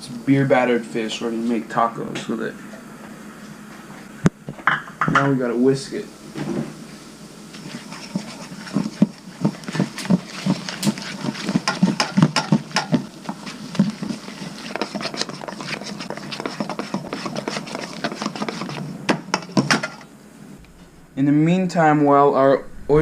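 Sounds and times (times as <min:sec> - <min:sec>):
whisk clinking against bowl: 0:07.6 - 0:20.0.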